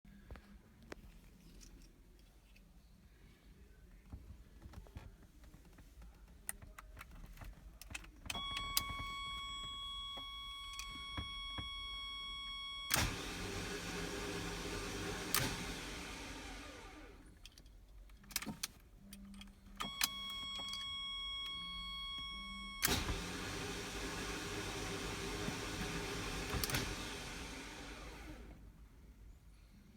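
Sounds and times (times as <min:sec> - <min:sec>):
starter motor whirring: 0:08.3 - 0:17.2, 0:22.0 - 0:28.7.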